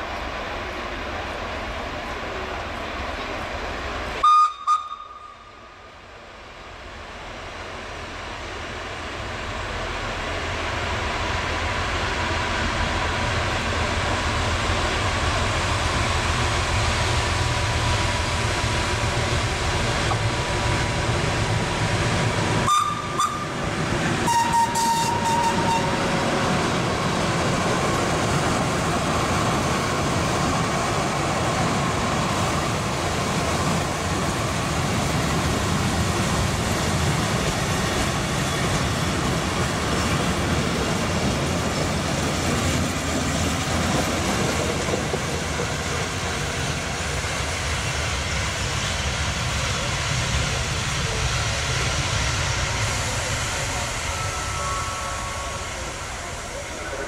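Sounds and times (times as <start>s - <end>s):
locomotive approaching: 0.0s - 57.0s
train horn blast: 4.2s - 5.6s, 22.6s - 23.6s, 24.2s - 26.1s.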